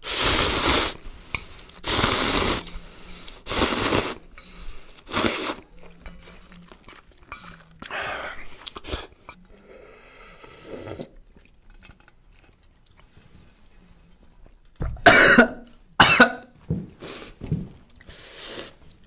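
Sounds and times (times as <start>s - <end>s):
eating noises: 0.0s - 13.2s
person coughing: 15.0s - 16.4s.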